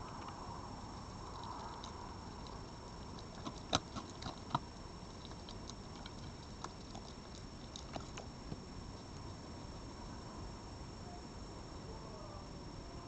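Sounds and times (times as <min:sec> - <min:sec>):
animal crunching food: 0:00.0 - 0:09.8
steady hiss: 0:00.0 - 0:13.0.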